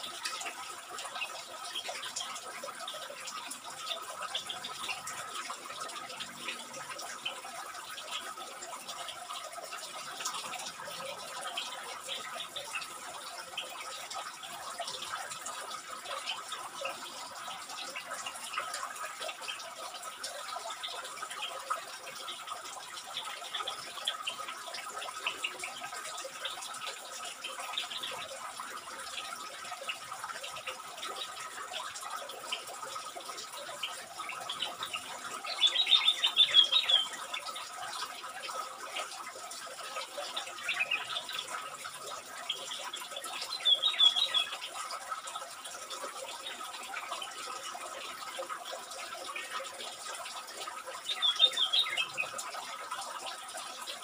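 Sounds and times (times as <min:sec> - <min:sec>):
soft bird chirps and clicks: 0:33.8 - 0:37.5, 0:42.5 - 0:44.8, 0:51.0 - 0:52.4
high-pitched bird chattering: 0:34.5 - 0:37.2, 0:40.6 - 0:41.2, 0:43.5 - 0:44.6, 0:51.1 - 0:52.3.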